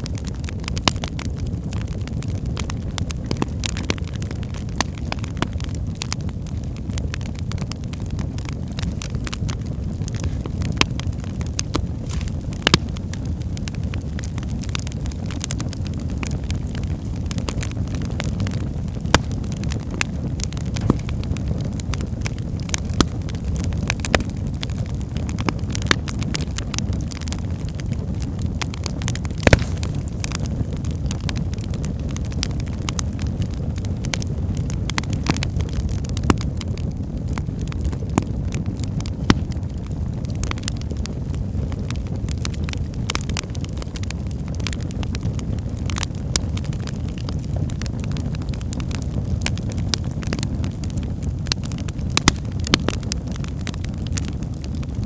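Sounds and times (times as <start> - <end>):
fire crackling and popping: 0.0 - 55.0.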